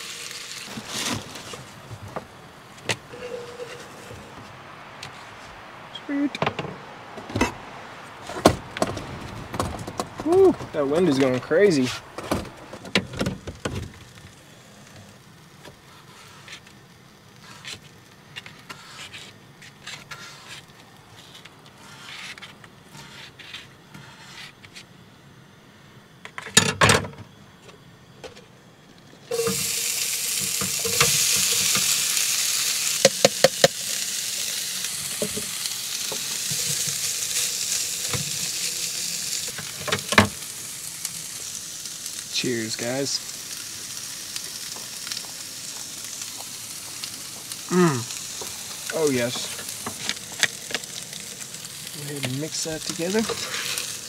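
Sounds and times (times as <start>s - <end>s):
food sizzling in skillet: 0.0s - 1.9s, 3.0s - 5.3s, 13.5s - 24.6s, 29.3s - 54.0s
handling sounds: 0.7s - 5.4s.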